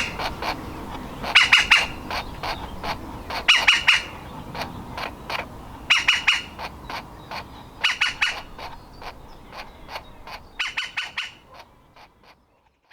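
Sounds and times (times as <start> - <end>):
woodpecker nestling calling: 0.0 - 12.6.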